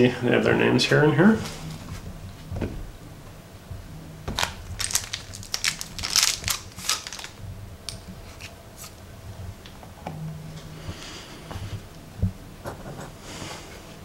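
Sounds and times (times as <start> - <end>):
plastic packaging crinkling: 4.3 - 7.4.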